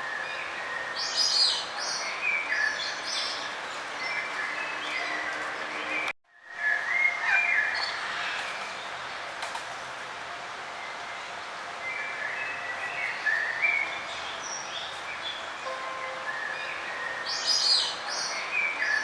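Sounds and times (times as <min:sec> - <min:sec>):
steady outdoor hiss: 0:00.0 - 0:19.0
small songbirds chirping: 0:00.1 - 0:06.0, 0:11.8 - 0:19.0.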